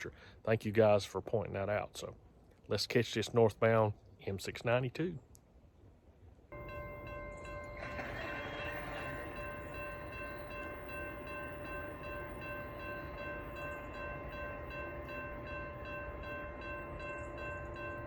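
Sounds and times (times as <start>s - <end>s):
freight train rumble: 6.6s - 18.0s
steady high tones: 6.6s - 18.0s.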